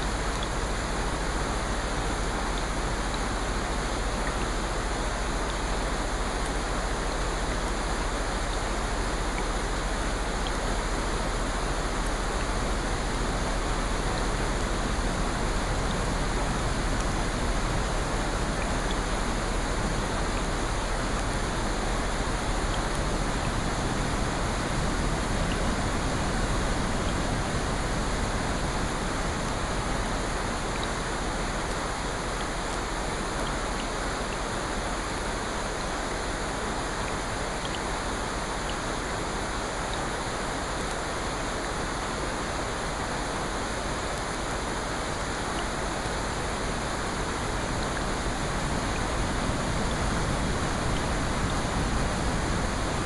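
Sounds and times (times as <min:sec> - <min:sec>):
faint raindrop ticks: 0:00.0 - 0:53.0
steady rain hiss: 0:00.0 - 0:53.0.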